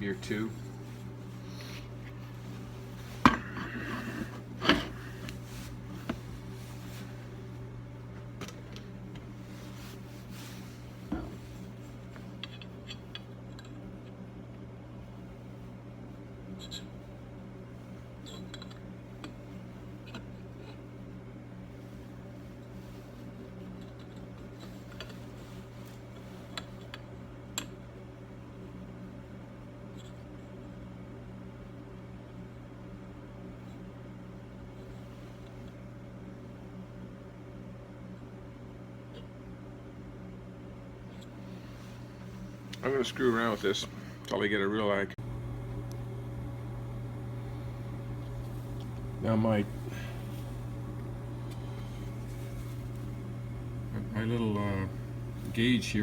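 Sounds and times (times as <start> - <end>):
fan humming: 0.0 - 12.5, 41.1 - 56.0
machine hum: 45.0 - 56.0.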